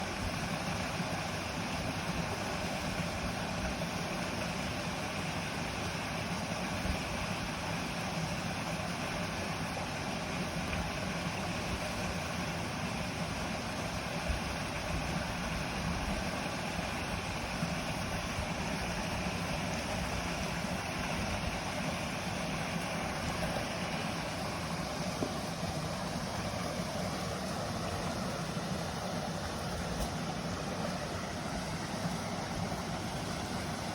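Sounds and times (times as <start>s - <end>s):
mountain stream rushing: 0.0s - 33.9s.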